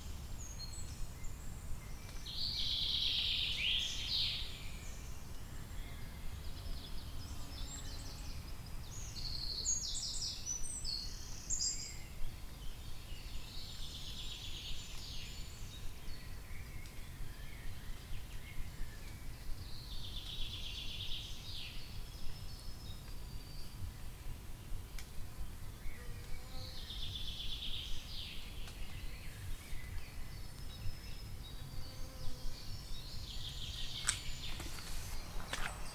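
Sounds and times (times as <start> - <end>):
songbirds trilling: 25.7 - 35.9.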